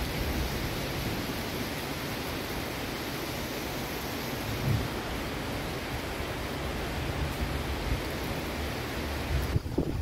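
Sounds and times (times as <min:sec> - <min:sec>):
steady rain falling: 0:00.0 - 0:10.0
wind rumbling on microphone: 0:00.0 - 0:10.0.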